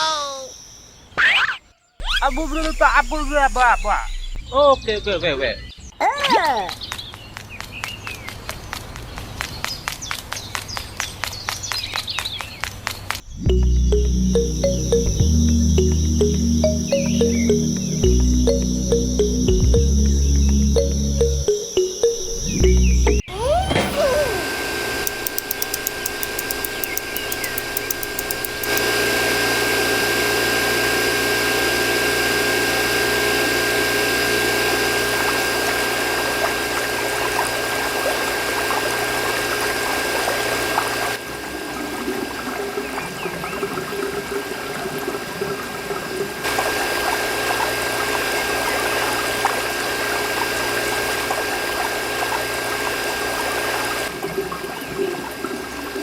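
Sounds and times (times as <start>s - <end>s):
electric water pump whining: 13.3s - 56.0s.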